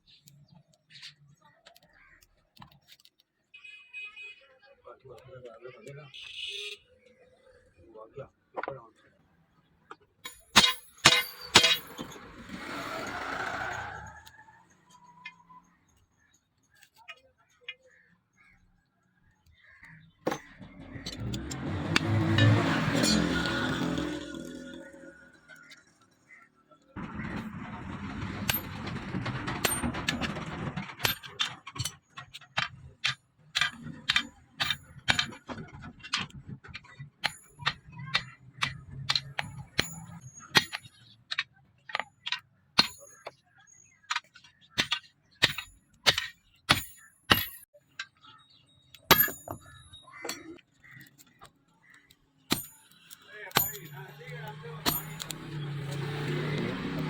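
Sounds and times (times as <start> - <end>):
hammer striking steel: 10.3 - 12.2, 20.3 - 25.2, 37.2 - 40.9, 44.8 - 47.6, 49.1 - 50.6, 52.5 - 57.0.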